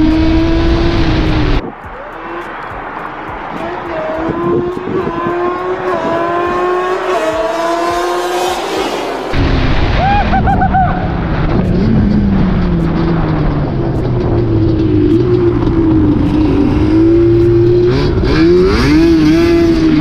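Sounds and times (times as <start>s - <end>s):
car engine revving up: 0.0s - 9.6s, 10.8s - 20.0s
deep steady engine drone: 9.4s - 18.7s.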